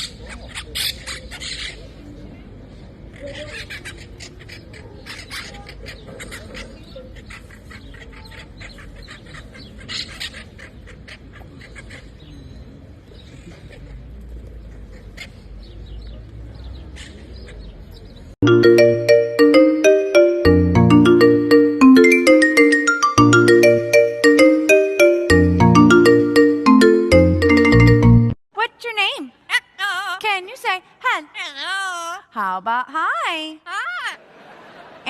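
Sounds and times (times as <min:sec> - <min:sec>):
mallet percussion music: 0:18.4 - 0:28.4.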